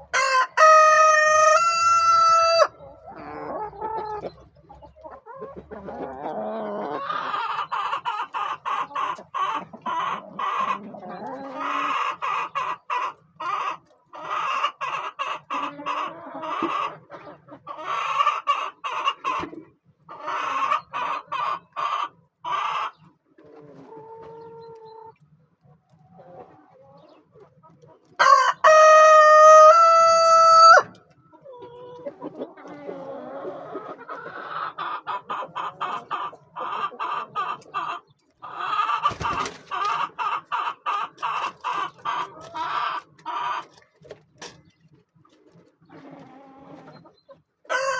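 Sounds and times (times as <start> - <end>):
chickens clucking: 0.0 - 47.9
rooster crowing: 0.1 - 2.7, 28.2 - 31.0.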